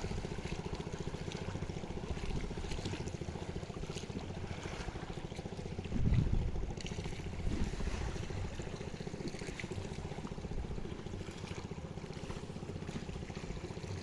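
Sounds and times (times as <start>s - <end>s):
small boat motor running: 0.0s - 14.0s.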